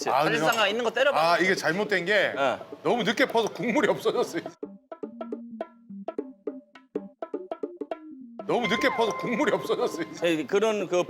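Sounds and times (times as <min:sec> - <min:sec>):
comic wood-block percussion music: 0:03.9 - 0:10.5.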